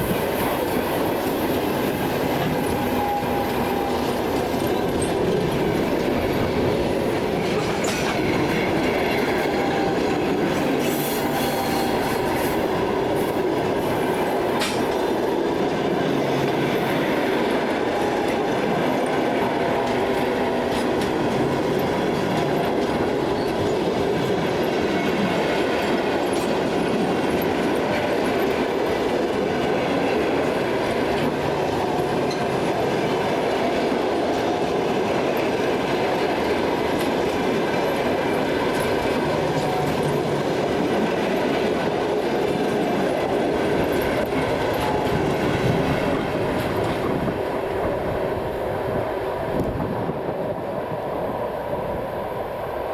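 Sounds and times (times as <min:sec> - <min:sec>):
train wheels clattering over rail joints: 0:00.0 - 0:47.5
high wheel squeal: 0:07.5 - 0:12.6.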